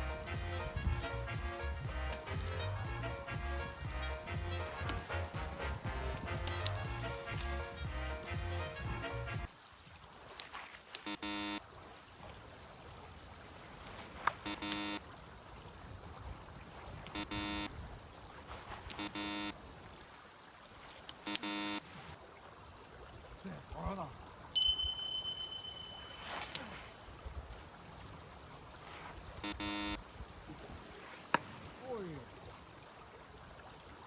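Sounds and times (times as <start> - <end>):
river water flowing: 0.0 - 34.0
short buzzy tones: 11.1 - 11.6, 14.5 - 15.0, 17.2 - 17.7, 19.0 - 19.5, 21.3 - 21.8, 29.4 - 30.0
clear high tone: 24.6 - 26.3.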